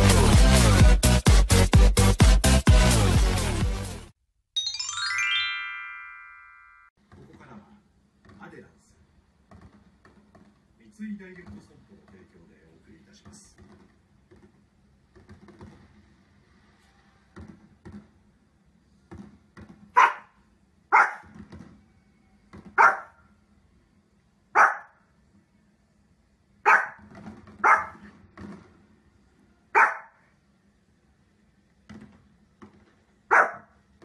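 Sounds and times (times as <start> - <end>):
small dog barking: 20.0 - 21.3, 22.8 - 23.2, 24.5 - 25.0, 26.6 - 27.0, 27.6 - 28.1, 29.7 - 30.3, 33.3 - 33.7.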